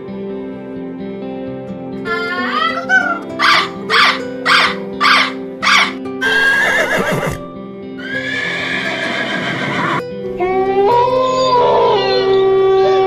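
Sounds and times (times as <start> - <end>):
background music: 0.0 - 13.0
animal calls: 2.1 - 7.4.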